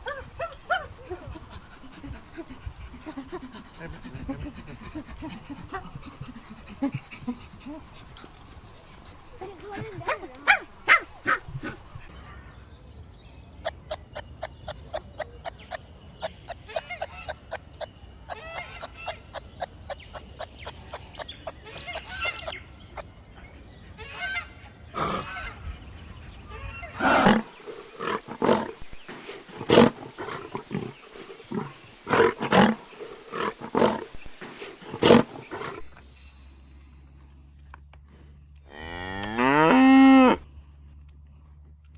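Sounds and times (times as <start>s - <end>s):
animal calls: 24.0s - 36.0s.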